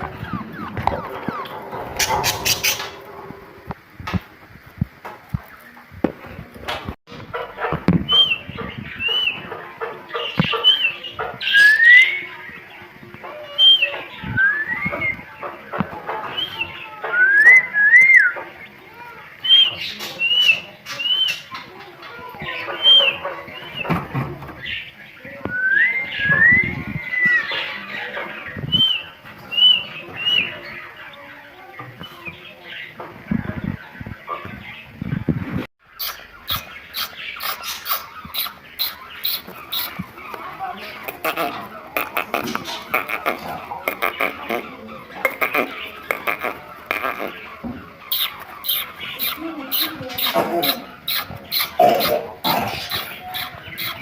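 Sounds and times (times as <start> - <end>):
bird chirps and calls: 0.0 - 3.5, 7.9 - 34.9, 35.8 - 54.0
bird whistling and chirping: 8.1 - 9.4, 10.6 - 12.3, 13.5 - 15.3, 16.3 - 18.4, 19.4 - 21.5, 25.5 - 27.5, 28.6 - 30.6.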